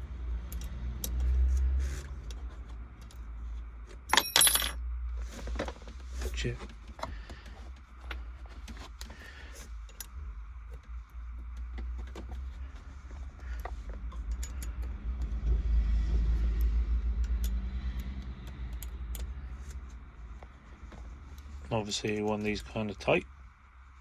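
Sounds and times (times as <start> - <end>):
motor vehicle low rumble: 0.0 - 24.0
hand tools clicking and jingling: 4.1 - 4.8.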